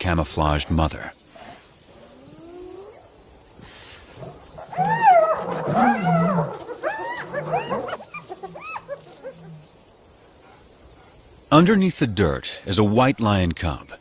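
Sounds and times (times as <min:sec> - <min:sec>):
hyenas whining yelps: 0:02.0 - 0:03.1, 0:04.2 - 0:09.9
low growls: 0:04.1 - 0:09.7.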